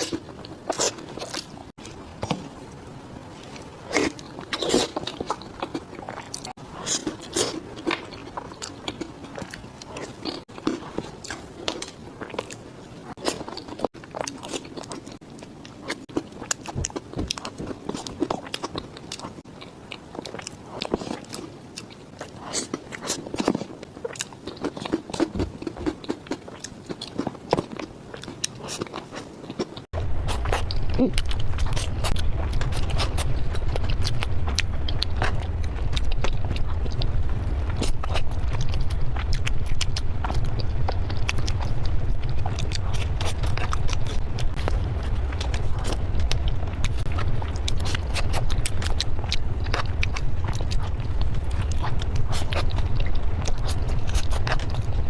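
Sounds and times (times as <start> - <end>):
biting and chewing: 0.0 - 55.0
steady low hum: 30.0 - 55.0.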